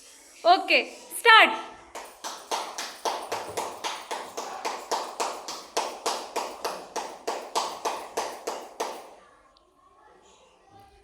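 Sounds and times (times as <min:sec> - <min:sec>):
person clapping hands: 0:02.0 - 0:09.2.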